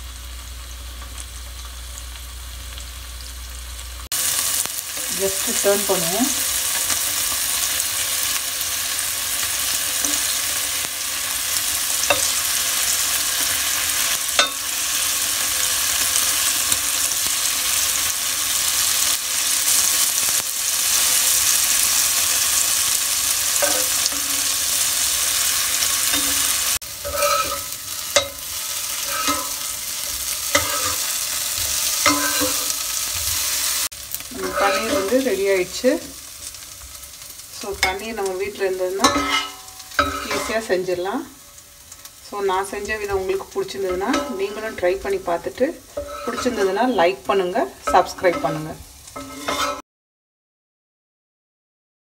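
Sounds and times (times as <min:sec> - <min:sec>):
paneer sizzling in oil: 0:00.0 - 0:49.8
steel spatula tapping and scraping: 0:12.0 - 0:13.6, 0:14.2 - 0:14.8, 0:23.5 - 0:24.6, 0:25.8 - 0:33.4, 0:34.4 - 0:35.3, 0:39.0 - 0:40.7, 0:43.0 - 0:45.2, 0:45.9 - 0:46.8, 0:47.4 - 0:49.8.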